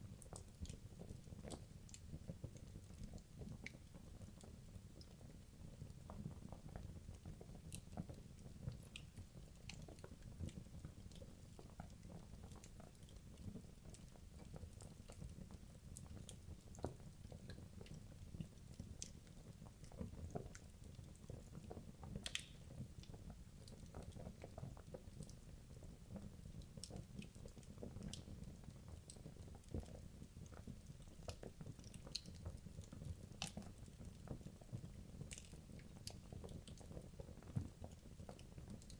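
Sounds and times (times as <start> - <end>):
logs crackling and popping: 16.0 - 25.9, 26.6 - 38.9.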